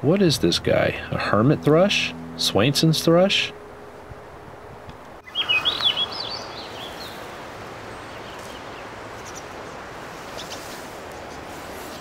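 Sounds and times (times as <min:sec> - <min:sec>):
background hiss: 0:00.0 - 0:12.0
songbird warbling: 0:04.8 - 0:07.3.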